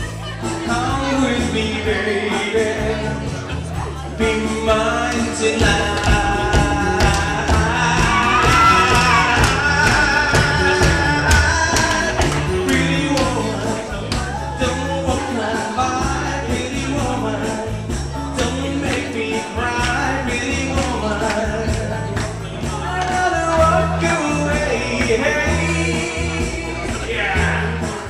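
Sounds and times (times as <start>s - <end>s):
live pop-rock band: 0.0s - 28.0s
person singing: 0.0s - 28.0s
steady drum beat: 5.0s - 28.0s.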